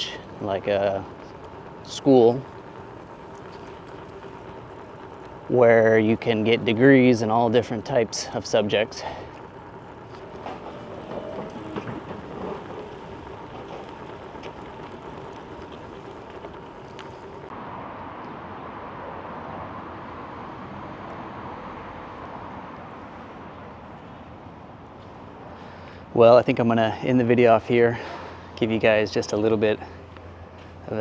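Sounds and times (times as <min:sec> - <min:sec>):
bicycle tyres rolling: 0:00.0 - 0:17.6, 0:22.9 - 0:31.0
faint clicks: 0:09.1 - 0:17.5.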